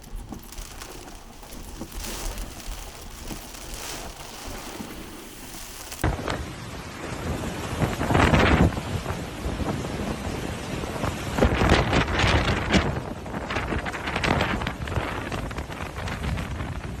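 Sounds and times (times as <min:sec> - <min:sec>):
heavy rain: 0:00.0 - 0:06.0
gusting wind buffeting microphone: 0:00.0 - 0:06.1.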